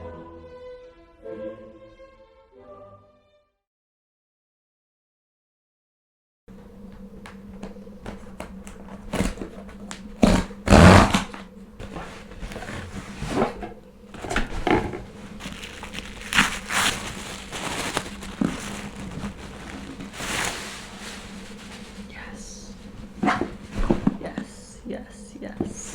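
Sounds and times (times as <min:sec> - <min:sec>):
packaging crinkling and rustling: 0:07.0 - 0:24.6.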